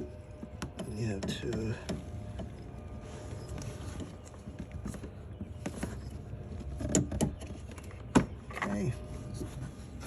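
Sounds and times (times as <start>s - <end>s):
hand tools clicking and knocking: 0.4s - 2.6s.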